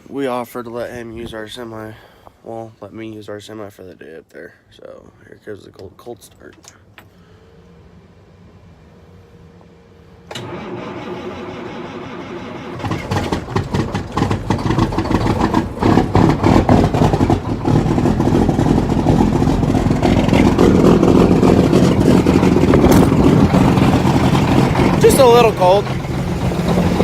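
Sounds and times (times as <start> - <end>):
diesel engine running unevenly: 7.2 - 27.0
starter motor cranking: 10.3 - 18.6, 19.4 - 27.0.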